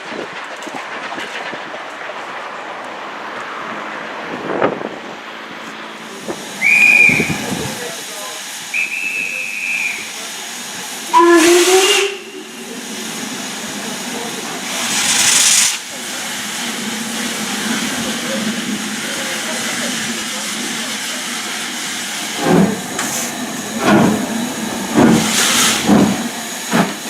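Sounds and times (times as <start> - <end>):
steam hissing: 6.0 - 27.0
high single-note whistle: 6.6 - 7.4, 8.8 - 10.1
steam locomotive whistle: 6.6 - 7.6, 8.7 - 10.2, 11.1 - 12.6.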